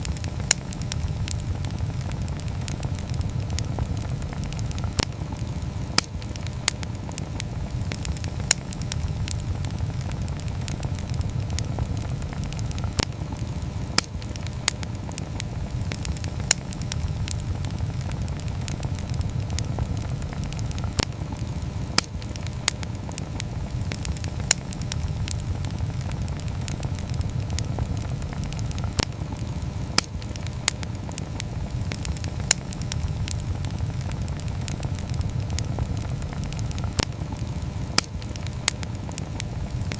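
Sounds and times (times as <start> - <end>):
campfire flames rushing: 0.0 - 39.9
fire crackling and popping: 0.0 - 39.9.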